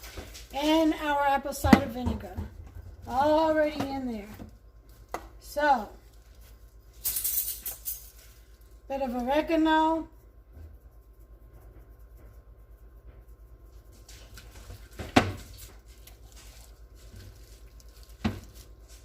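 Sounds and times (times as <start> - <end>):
steady low hum: 0.0 - 19.0
faint rustling and crackling: 7.9 - 19.0.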